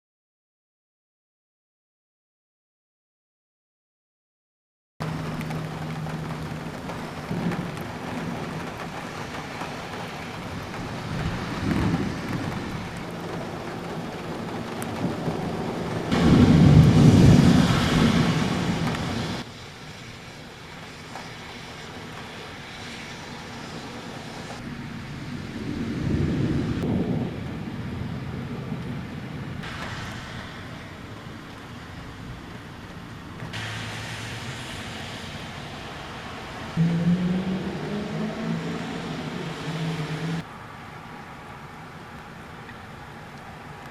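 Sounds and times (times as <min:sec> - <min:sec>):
low thunder rumble: 0:05.0 - 0:19.5, 0:24.6 - 0:40.4
steady rain: 0:05.0 - 0:43.9.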